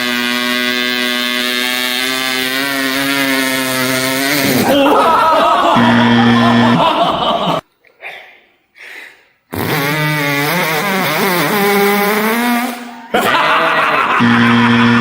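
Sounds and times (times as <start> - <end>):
mouth chainsaw imitation: 0.0 - 7.6, 9.6 - 15.0
wavering vocal tone: 4.4 - 7.6, 13.0 - 15.0.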